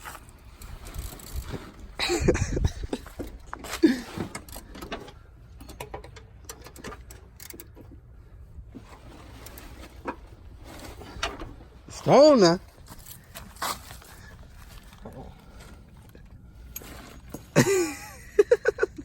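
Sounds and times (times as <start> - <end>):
body moving under a car: 0.0 - 5.6, 7.7 - 17.6
hand tools clicking and knocking: 2.9 - 8.0.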